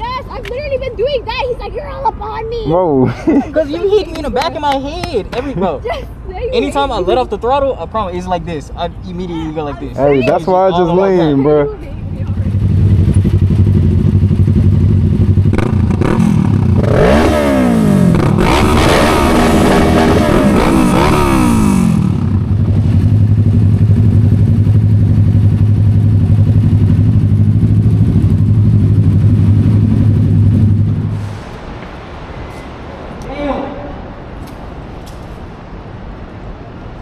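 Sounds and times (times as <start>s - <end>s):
motorcycle engine revving: 12.2s - 31.3s.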